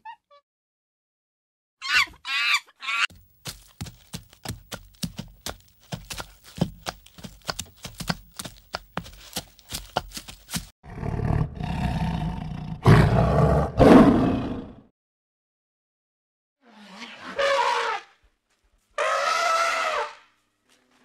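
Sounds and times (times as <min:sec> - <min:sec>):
tiger growling and roaring: 0:10.9 - 0:14.8.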